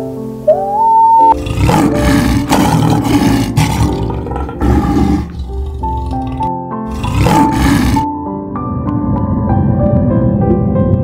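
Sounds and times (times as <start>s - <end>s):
background music with held tones: 0.0s - 11.0s
lion roaring: 1.4s - 8.0s.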